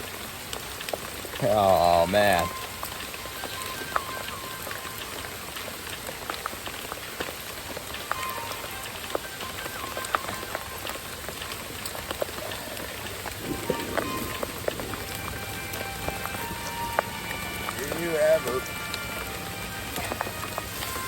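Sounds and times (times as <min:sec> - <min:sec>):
raindrops ticking on surfaces: 0:00.0 - 0:21.0
steady rain falling: 0:00.0 - 0:21.0.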